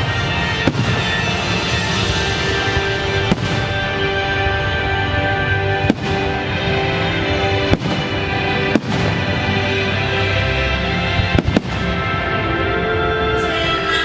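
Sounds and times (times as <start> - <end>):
fireworks bangs: 0.0 - 4.8, 5.7 - 10.2, 11.1 - 12.3
loud music: 0.0 - 14.0.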